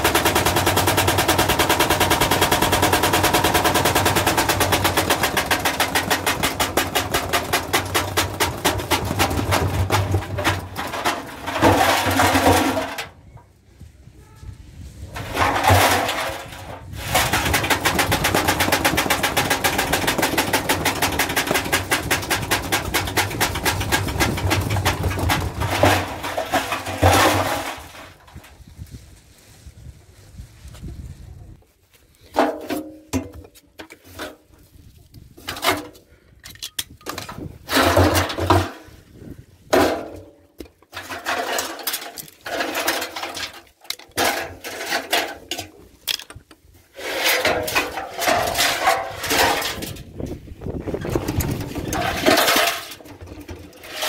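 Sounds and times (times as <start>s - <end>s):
washing machine knocking and rattling: 0.0s - 13.0s, 15.2s - 27.9s.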